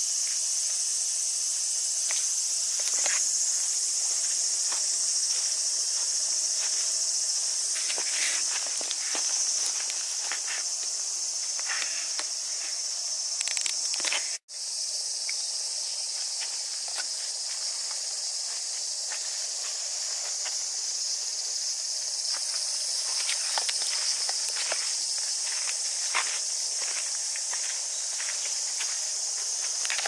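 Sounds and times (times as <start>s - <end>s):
cicada chorus drone: 0.0s - 30.0s
footsteps on a path: 2.0s - 12.9s, 16.1s - 21.0s, 22.0s - 30.0s.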